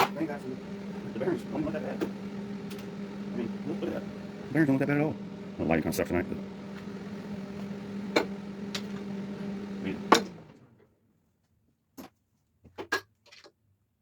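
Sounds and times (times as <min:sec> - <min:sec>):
steady hum: 0:00.0 - 0:10.6.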